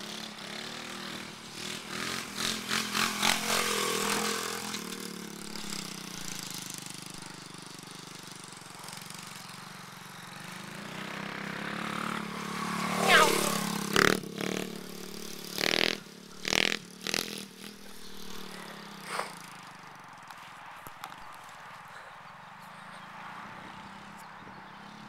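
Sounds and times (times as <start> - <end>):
pit bike engine running: 0.0 - 25.0.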